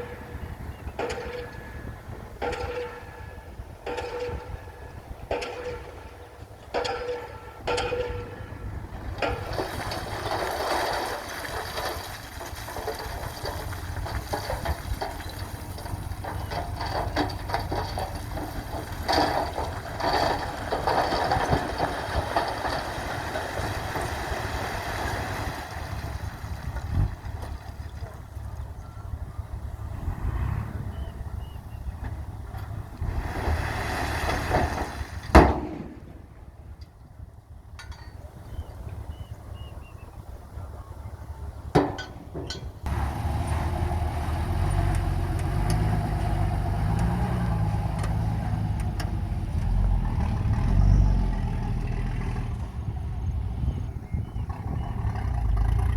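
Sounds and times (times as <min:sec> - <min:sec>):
mechanical knocks: 0:00.0 - 0:24.1.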